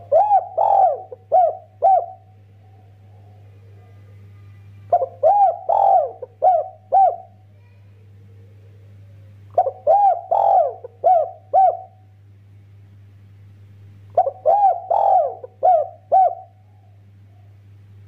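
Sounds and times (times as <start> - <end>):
dove cooing: 0.0 - 4.3, 4.9 - 7.5, 9.5 - 12.0, 14.1 - 17.6
faint low hum: 0.0 - 18.0.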